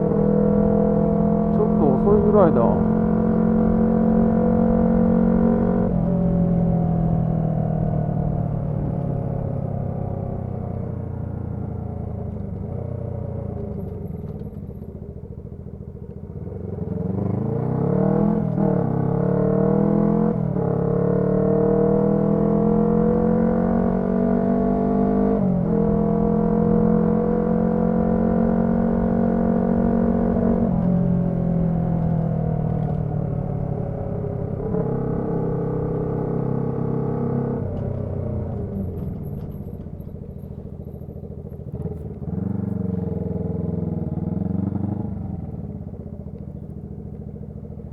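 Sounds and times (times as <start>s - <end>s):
motorcycle engine riding: 0.0s - 47.9s.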